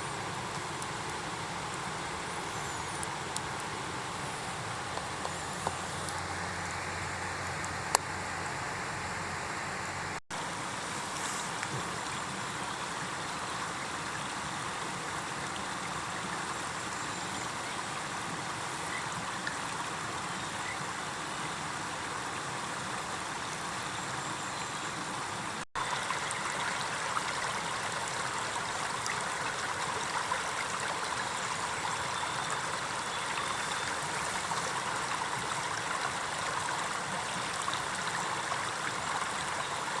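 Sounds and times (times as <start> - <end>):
fire crackling: 0.0 - 12.0
campfire hissing: 0.0 - 28.8, 31.6 - 37.9.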